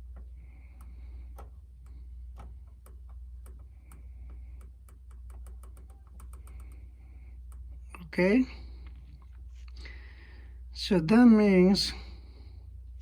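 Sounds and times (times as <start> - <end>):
small clicks and light taps: 0.0 - 9.9
low electrical hum: 0.0 - 13.0.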